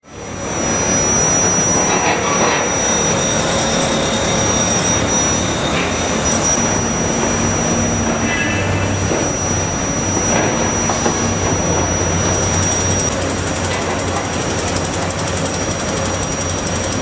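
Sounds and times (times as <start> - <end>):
excavator diesel engine and hydraulics: 0.0 - 17.0
thin high whine: 0.0 - 17.0
short squeaks: 1.5 - 13.1.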